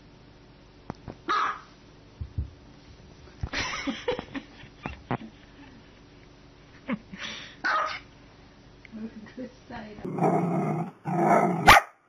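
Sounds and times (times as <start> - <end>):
small dog yapping: 1.3 - 1.7, 7.6 - 8.0, 11.3 - 11.9.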